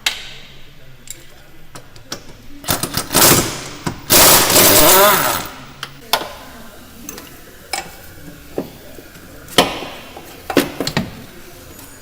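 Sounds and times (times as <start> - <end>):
hand tools knocking and clanking: 6.1 - 6.4, 9.5 - 11.3.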